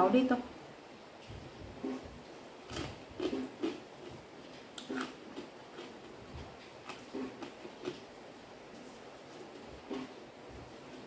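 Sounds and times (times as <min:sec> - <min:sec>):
mouth smacks: 0:02.8 - 0:03.8
chewing clicks: 0:04.8 - 0:06.0.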